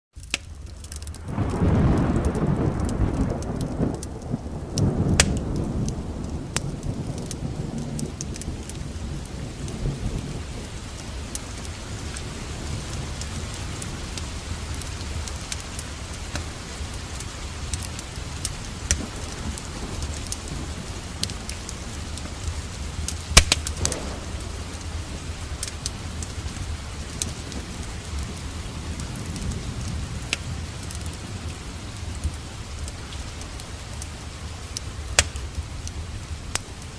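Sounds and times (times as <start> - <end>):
wood fire crackling: 0.1 - 36.9
heavy rain: 0.2 - 36.9
thunder rumbling: 0.5 - 36.9.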